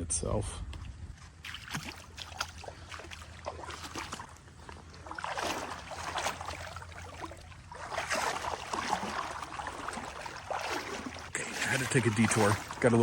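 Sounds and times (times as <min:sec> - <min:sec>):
footsteps wading through water: 0:00.7 - 0:13.0.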